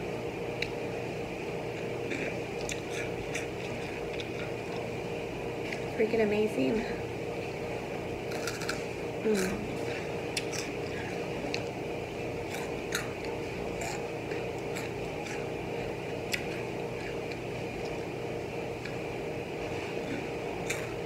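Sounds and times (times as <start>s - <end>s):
steady low hum: 0.0s - 21.0s
crunchy snacks being chewed: 1.8s - 5.0s, 8.2s - 11.8s, 12.4s - 21.0s.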